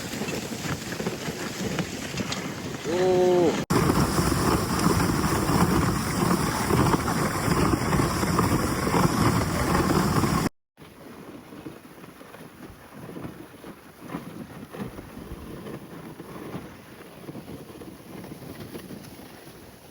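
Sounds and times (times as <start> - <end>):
dog sled rushing: 0.0 - 19.9
wind buffeting microphone: 1.5 - 10.5.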